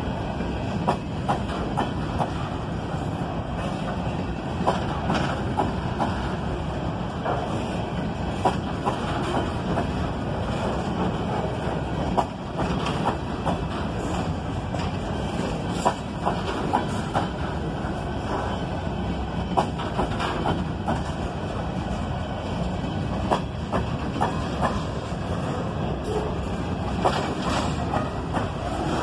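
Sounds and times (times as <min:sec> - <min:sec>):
clicks and clanks of freight cars: 0:00.0 - 0:29.0
steel wheels rumbling on rail: 0:00.0 - 0:29.0.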